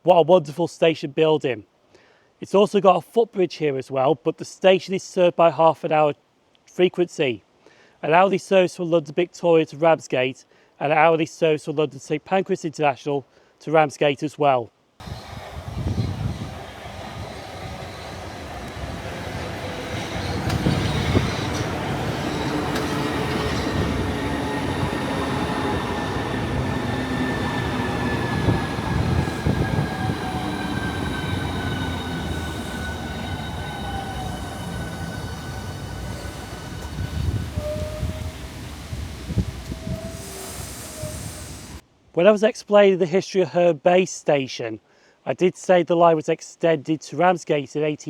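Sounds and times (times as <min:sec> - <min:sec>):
wheel-on-rail rumble: 0:15.0 - 0:40.1
high whine of electric train: 0:15.0 - 0:41.8.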